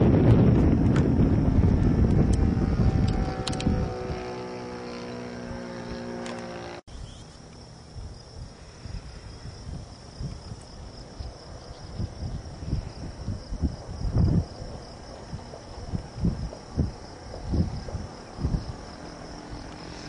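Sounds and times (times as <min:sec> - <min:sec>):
wind buffeting microphone: 0:00.0 - 0:06.6, 0:07.9 - 0:20.0
high insect hum: 0:00.2 - 0:20.0
model airplane engine running: 0:00.4 - 0:06.8, 0:18.4 - 0:20.0.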